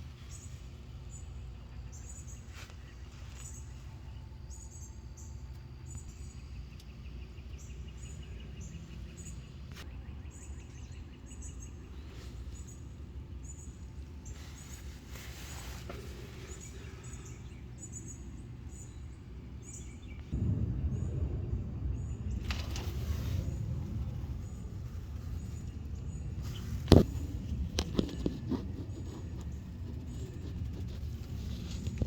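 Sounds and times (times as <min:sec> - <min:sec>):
low rumble: 0:00.0 - 0:32.0
birds chirping: 0:00.1 - 0:32.0.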